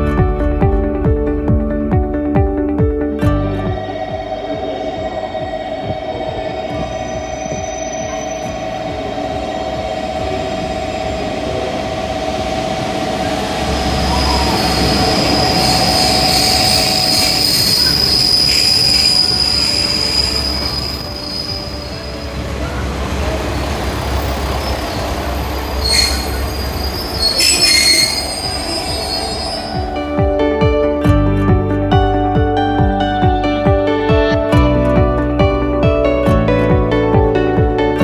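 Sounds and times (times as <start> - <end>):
low train rumble: 0.0 - 38.0
train wheels squealing on rails: 4.0 - 30.1.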